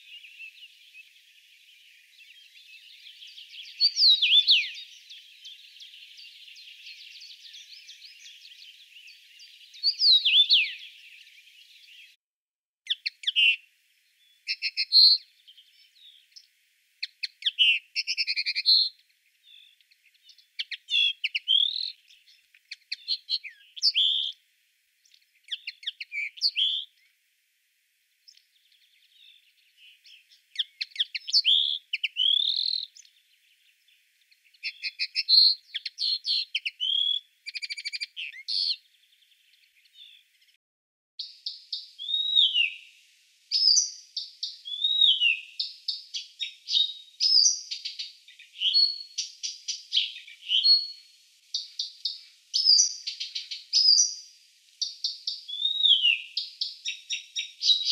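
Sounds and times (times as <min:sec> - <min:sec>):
bird twittering: 0:02.2 - 0:12.1, 0:12.9 - 0:13.6, 0:14.5 - 0:16.2, 0:17.0 - 0:24.4, 0:29.0 - 0:33.2, 0:34.6 - 0:38.9, 0:41.2 - 0:42.8, 0:43.5 - 0:57.9.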